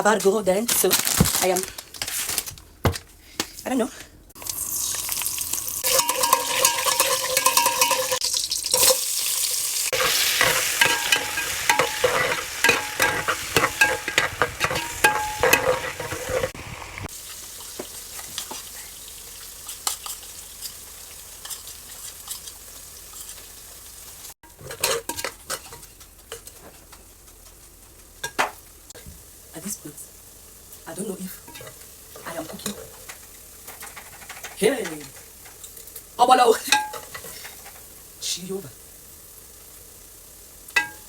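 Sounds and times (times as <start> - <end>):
food sizzling in a pot: 4.3 - 41.0
spoon scraping a pot: 5.8 - 9.1, 9.9 - 16.6, 24.5 - 26.6.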